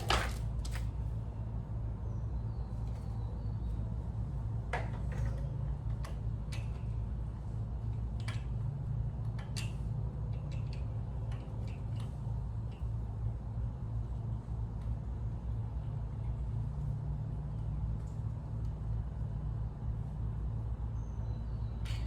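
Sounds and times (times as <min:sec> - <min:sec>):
steady low hum: 0:00.0 - 0:22.0
engine parts and tools clicking: 0:04.8 - 0:13.3.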